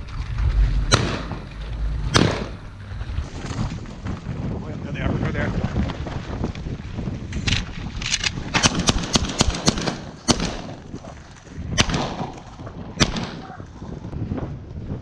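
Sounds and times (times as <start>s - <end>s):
wind noise on microphone: 0.0s - 15.0s
shotgun shots: 0.9s - 1.5s, 2.1s - 2.6s, 8.5s - 10.8s, 11.8s - 12.4s, 13.0s - 13.6s.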